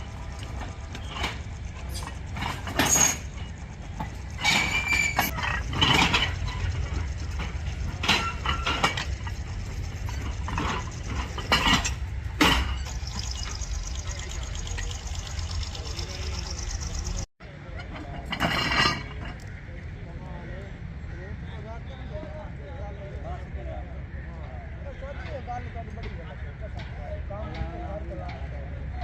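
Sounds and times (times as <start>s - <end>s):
metal clanks and knocks: 0.0s - 15.0s, 17.8s - 19.4s
low machine hum: 0.0s - 17.3s.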